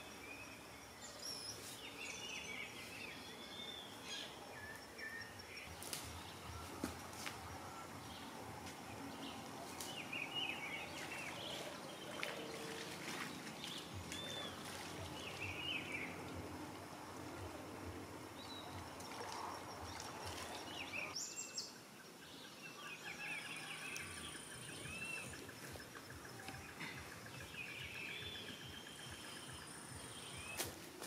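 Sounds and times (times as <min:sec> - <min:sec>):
birds chirping and calling: 0:07.9 - 0:16.4, 0:22.4 - 0:30.7.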